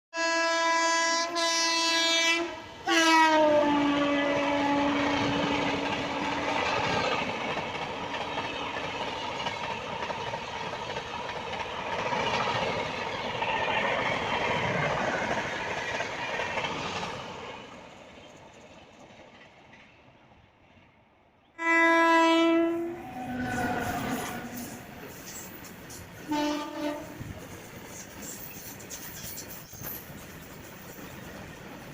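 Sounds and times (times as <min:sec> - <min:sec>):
train horn: 0:00.1 - 0:06.4, 0:21.6 - 0:25.0, 0:26.2 - 0:27.3
train coaches rumbling on rails: 0:00.2 - 0:21.0, 0:21.6 - 0:31.9.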